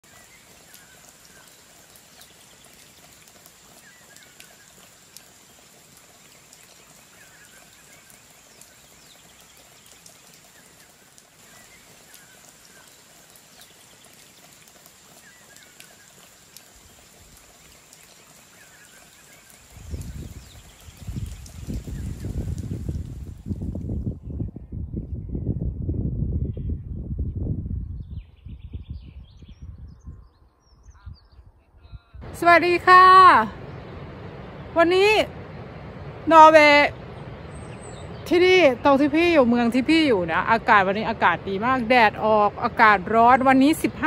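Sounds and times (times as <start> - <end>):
faint drip-like clicks: 0.1 - 20.1
low rumble: 32.2 - 43.6.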